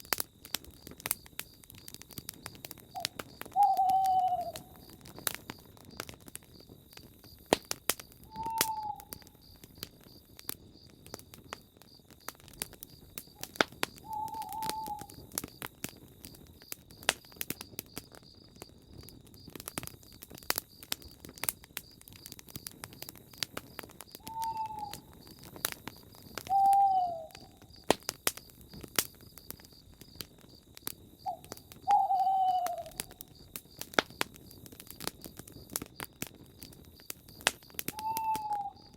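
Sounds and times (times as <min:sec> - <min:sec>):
campfire crackling and popping: 0:00.0 - 0:38.9
bird calling falling note: 0:03.0 - 0:04.7, 0:08.3 - 0:09.1, 0:14.1 - 0:15.1, 0:24.2 - 0:25.1, 0:26.5 - 0:27.5, 0:31.3 - 0:33.1, 0:38.0 - 0:38.9.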